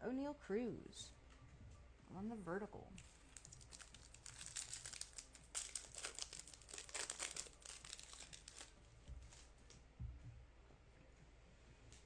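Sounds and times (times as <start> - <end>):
trading cards rustling and flicking: 3.0 - 9.5.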